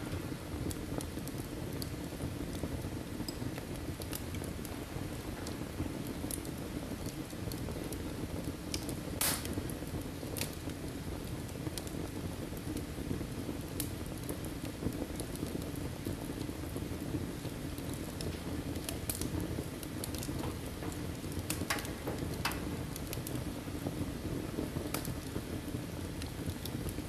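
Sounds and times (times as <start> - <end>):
firewood crackling: 0.0 - 27.0
rush of flame: 0.0 - 27.0
loud pop of firewood: 9.2 - 9.6, 20.4 - 23.2.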